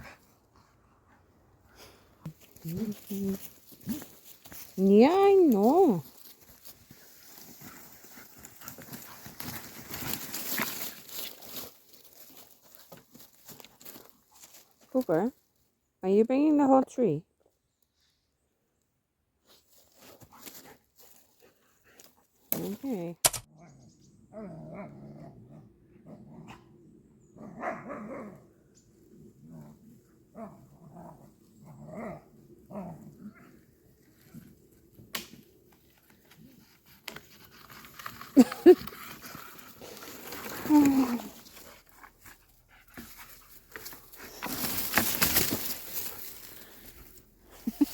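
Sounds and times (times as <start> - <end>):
branch scraping along ground: 1.8 - 15.2, 19.4 - 23.1, 29.1 - 47.9
dog growling: 24.3 - 26.7.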